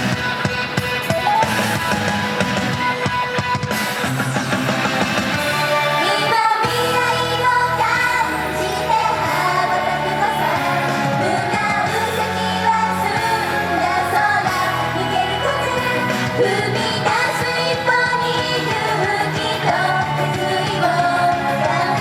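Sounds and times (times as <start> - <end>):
pop-rock band playing: 0.0 - 22.0
women singing: 5.8 - 22.0.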